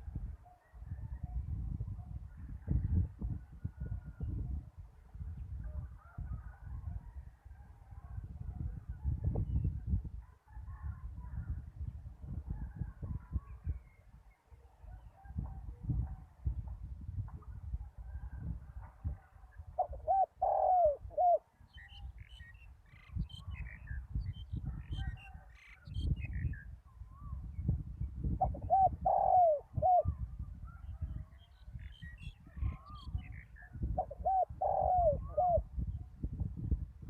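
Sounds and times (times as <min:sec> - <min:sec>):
dove cooing: 0:19.8 - 0:21.4, 0:28.4 - 0:30.2, 0:34.0 - 0:35.7.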